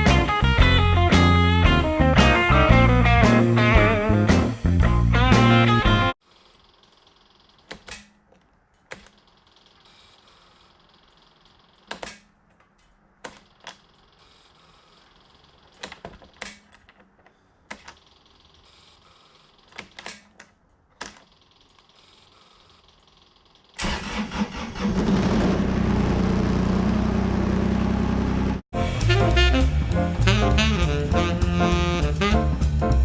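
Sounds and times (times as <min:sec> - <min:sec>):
sharp clicks and knocks: 0:06.9 - 0:09.8, 0:11.0 - 0:14.1.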